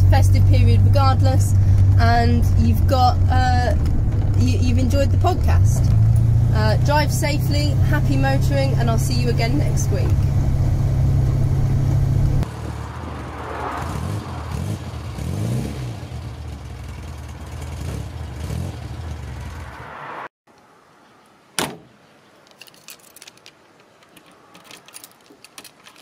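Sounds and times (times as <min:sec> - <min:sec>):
car engine running: 0:00.0 - 0:20.2
keys jangling: 0:22.5 - 0:26.0.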